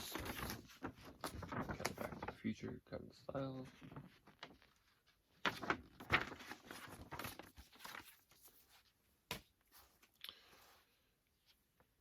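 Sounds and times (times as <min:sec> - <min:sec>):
packaging rustling and crinkling: 0:00.0 - 0:02.4.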